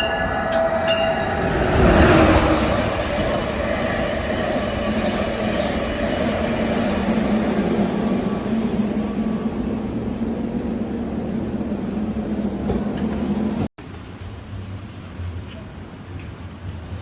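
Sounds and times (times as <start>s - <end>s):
train horn blast: 0.0s - 3.0s
train rumbling on rails: 0.0s - 17.0s.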